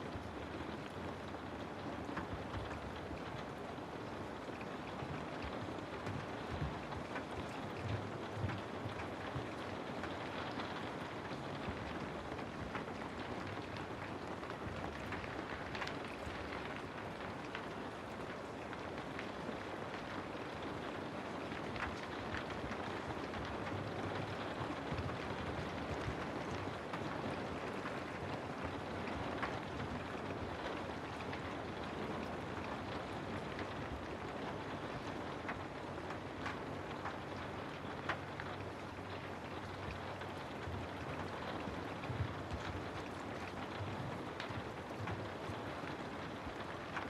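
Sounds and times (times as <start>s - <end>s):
rain falling on a house: 0.0s - 47.0s.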